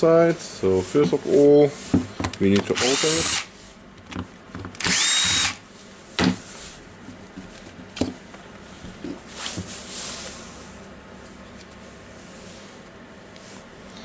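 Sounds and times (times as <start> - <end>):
electric screwdriver whining: 2.8 - 3.5, 4.8 - 5.6.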